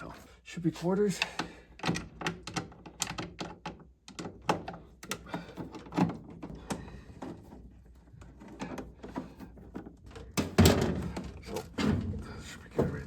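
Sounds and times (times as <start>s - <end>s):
hand tools clicking and knocking: 1.0s - 13.0s.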